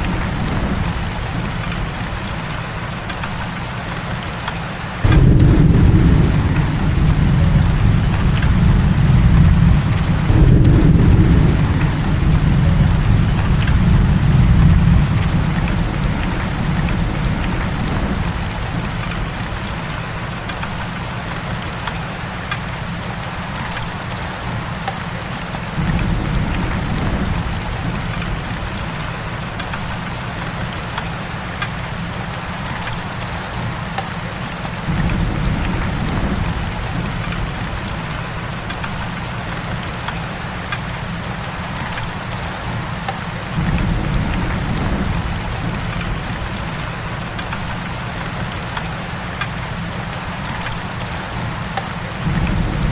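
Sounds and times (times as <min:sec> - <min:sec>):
heavy rain hissing: 0:00.0 - 0:52.9
raindrop ticks: 0:00.0 - 0:52.9
low rumble: 0:05.0 - 0:19.2.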